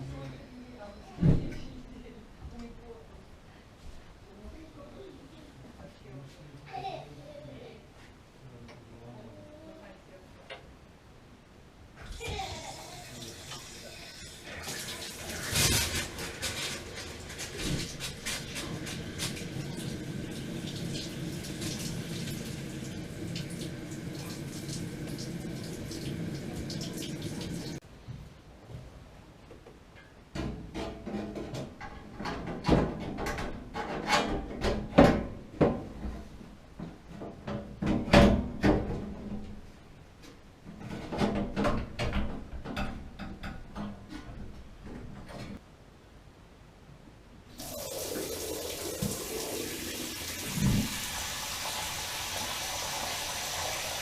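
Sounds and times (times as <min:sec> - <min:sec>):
water running from a tap: 0:12.1 - 0:15.7, 0:17.3 - 0:27.8, 0:47.6 - 0:54.0.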